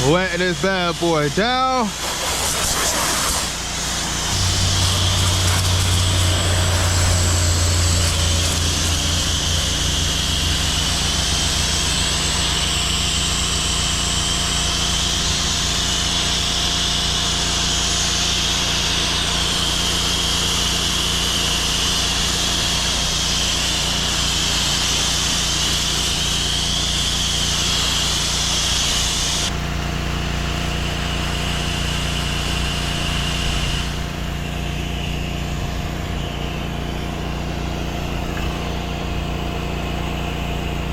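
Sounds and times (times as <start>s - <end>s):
pressure washer engine running: 0.0s - 40.9s
water spray hissing: 1.4s - 16.3s.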